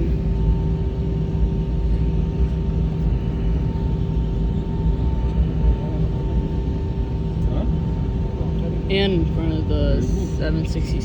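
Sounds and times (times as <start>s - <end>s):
aircraft cabin rumble: 0.0s - 11.0s
constant hum tones: 0.0s - 11.0s.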